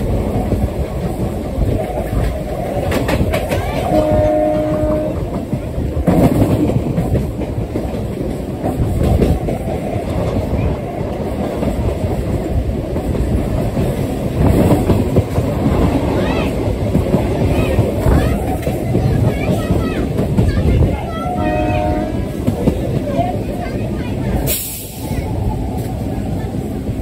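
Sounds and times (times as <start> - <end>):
train wheel and track rumble: 0.0 - 27.0
wheels clacking over rail joints: 0.0 - 27.0
wind: 0.0 - 27.0
train horn blast: 3.9 - 5.3, 21.2 - 22.4.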